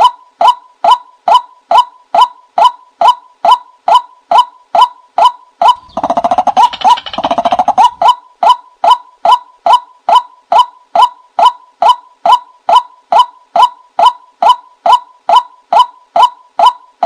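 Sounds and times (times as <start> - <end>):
recorded bird call sharp notes: 1.0 - 17.0
rapid chattering bird call: 5.6 - 8.2.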